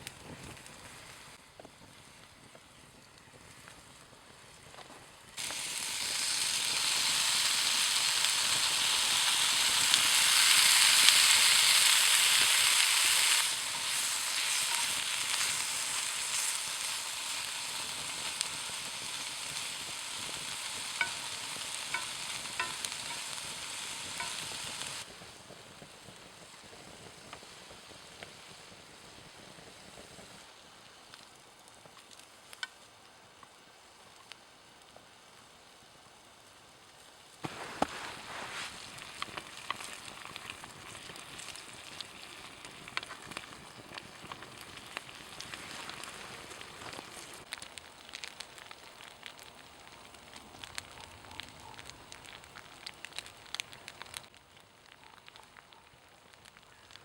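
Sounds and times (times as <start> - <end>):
food sizzling in a pan: 5.4 - 32.9, 37.2 - 54.3
small pops: 37.4 - 55.6.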